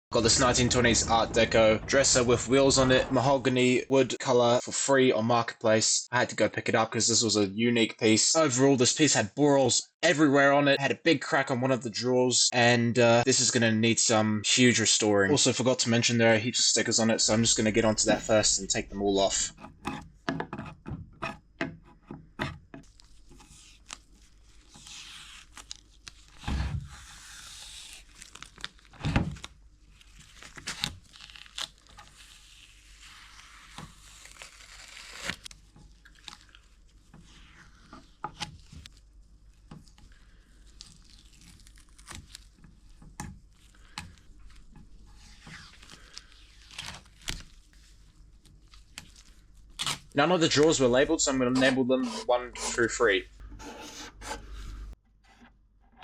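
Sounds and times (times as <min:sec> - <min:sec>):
paper stickers tearing: 0:27.1 - 0:36.6, 0:40.2 - 0:42.6, 0:45.5 - 0:47.6.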